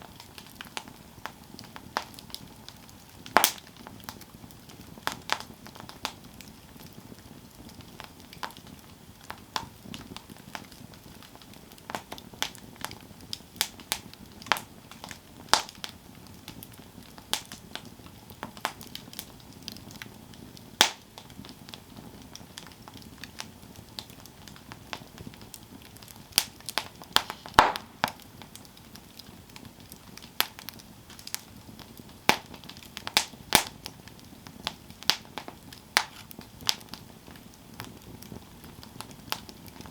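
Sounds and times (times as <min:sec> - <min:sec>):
campfire wood crackling and popping: 0:00.0 - 0:39.9
rush of flame: 0:24.3 - 0:37.0.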